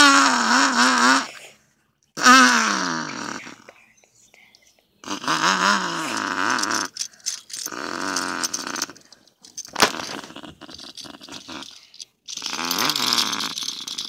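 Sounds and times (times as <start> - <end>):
child making engine noises: 0.0 - 1.5, 2.2 - 3.8, 5.0 - 7.0.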